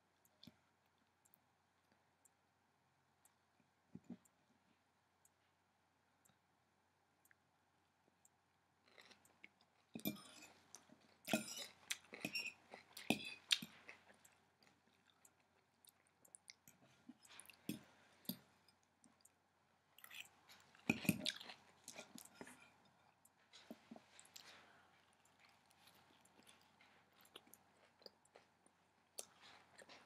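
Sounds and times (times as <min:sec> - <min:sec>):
crunchy chewing: 0:08.8 - 0:19.3, 0:20.0 - 0:30.0.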